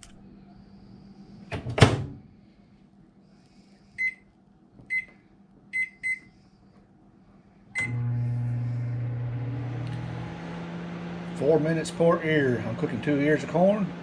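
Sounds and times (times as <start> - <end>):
microwave oven hum: 7.2 - 14.0.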